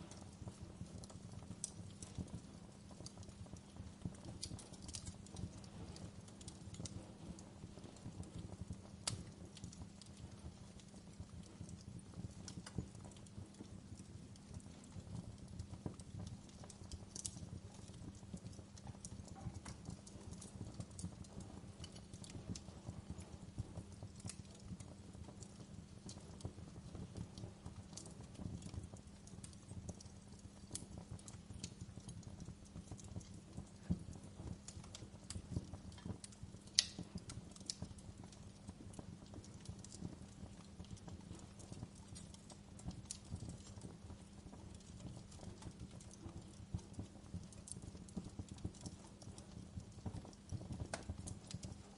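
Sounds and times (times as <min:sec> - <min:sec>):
wood fire crackling: 0:00.0 - 0:51.9
sharp fire pops: 0:14.6 - 0:38.8, 0:49.9 - 0:51.9.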